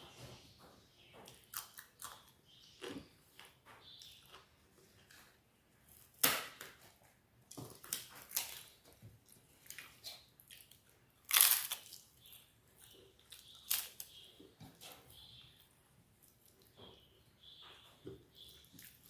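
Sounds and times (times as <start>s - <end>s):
chewing: 1.2s - 5.4s, 8.3s - 14.1s
crunchy bites: 10.5s - 12.4s.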